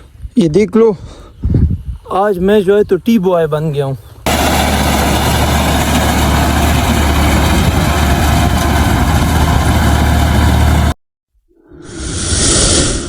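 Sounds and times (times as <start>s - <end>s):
tractor engine idling: 4.3s - 11.0s.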